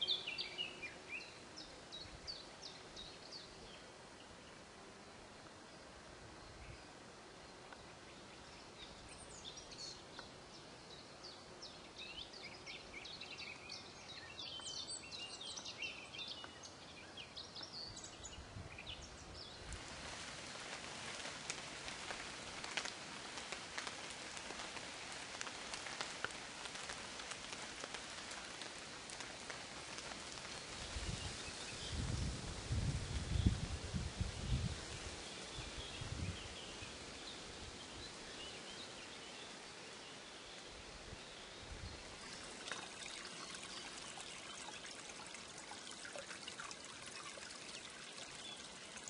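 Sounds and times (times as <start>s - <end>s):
hiss with faint crackles: 0.0s - 49.0s
songbirds chirping: 0.0s - 49.0s.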